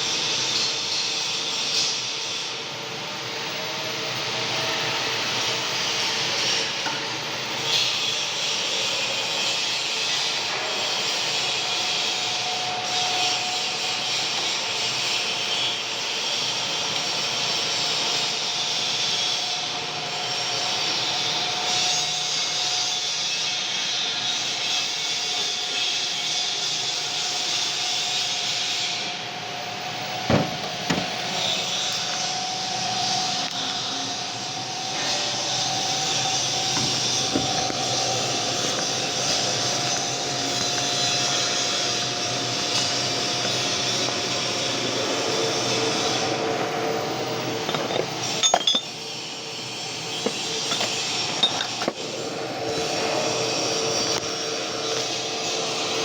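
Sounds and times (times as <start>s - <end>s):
metal lathe whining: 0.0s - 56.0s
metal lathe running: 29.9s - 56.0s.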